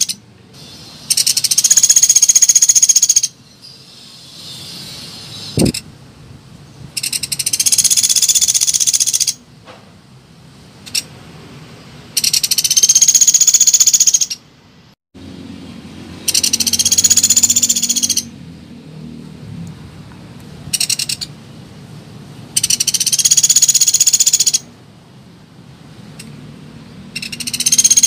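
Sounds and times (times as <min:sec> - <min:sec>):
woodpecker rattling call: 0:00.0 - 0:05.8, 0:07.0 - 0:09.4, 0:10.8 - 0:11.1, 0:12.2 - 0:14.4, 0:16.2 - 0:18.3, 0:20.7 - 0:21.4, 0:22.5 - 0:24.7, 0:27.1 - 0:28.0.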